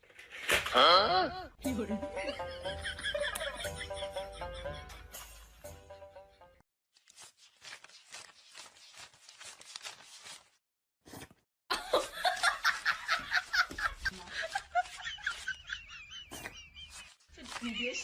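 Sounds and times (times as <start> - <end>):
person laughing: 1.3 - 5.1, 11.7 - 18.0.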